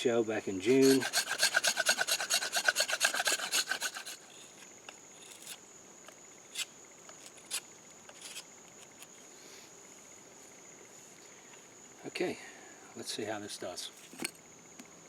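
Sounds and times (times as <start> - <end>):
cricket trilling: 0.0 - 15.0
knife scraping wood: 0.7 - 4.6, 5.2 - 5.6, 6.5 - 9.0.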